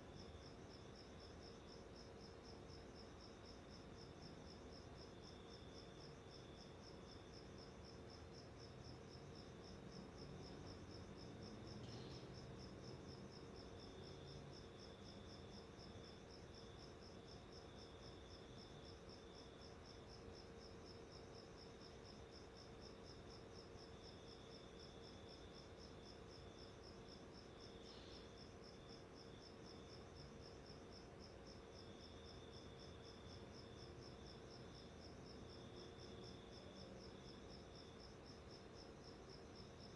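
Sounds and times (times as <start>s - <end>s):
faint chirps: 11.8s - 12.4s, 27.8s - 28.4s.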